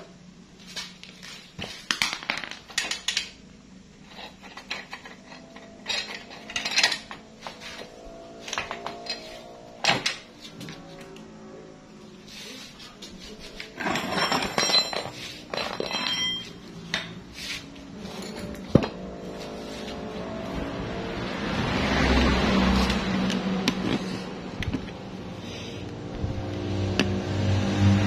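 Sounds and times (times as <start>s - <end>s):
metal tools clinking: 4.1s - 10.4s, 13.5s - 19.8s.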